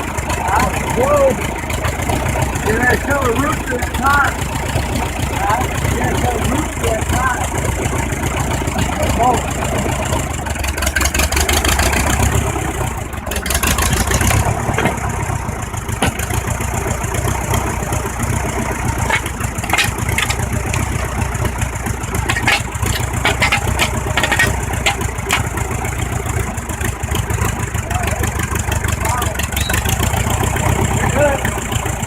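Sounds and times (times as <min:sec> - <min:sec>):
tractor engine running: 0:00.0 - 0:32.0
sharp clicks and cracks: 0:19.0 - 0:21.2, 0:22.2 - 0:25.8.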